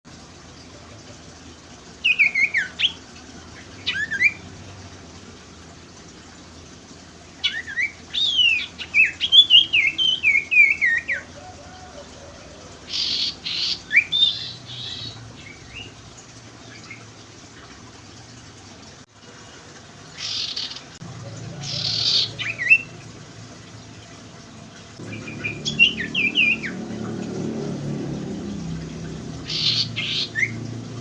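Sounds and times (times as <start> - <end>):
bird rasping calls: 29.4 - 30.6.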